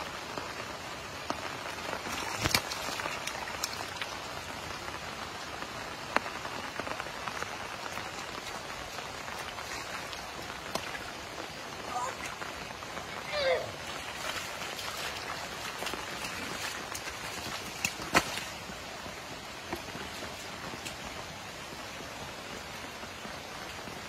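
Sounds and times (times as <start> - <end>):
rain on water: 0.0 - 24.0
splashes in water: 2.0 - 4.2, 13.4 - 18.7.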